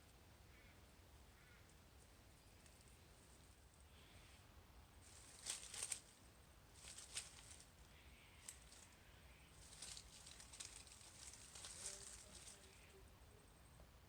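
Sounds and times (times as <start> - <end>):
dry leaves rustling and crackling: 5.0 - 13.0.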